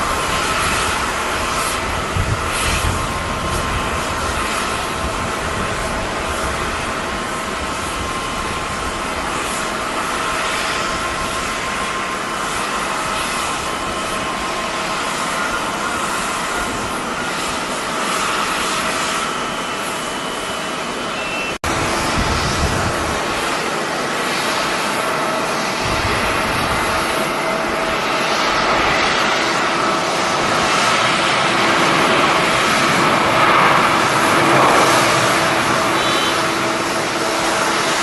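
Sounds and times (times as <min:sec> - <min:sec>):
jet engines roaring and whining: 0:00.0 - 0:38.0.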